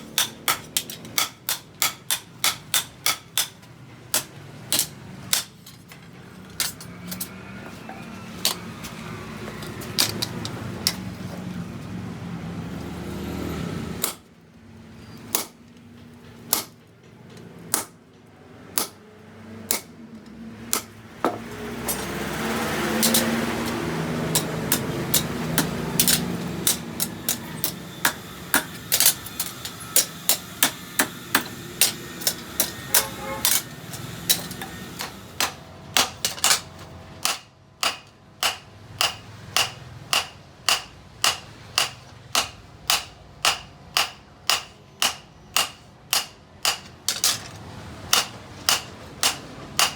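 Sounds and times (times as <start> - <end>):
hammer striking steel: 0.0 - 5.8, 14.0 - 14.3, 15.3 - 15.6, 16.4 - 16.8, 17.7 - 18.0, 18.7 - 19.0, 19.7 - 20.0, 20.7 - 47.4, 48.1 - 49.9
steady machine hum: 21.1 - 36.0.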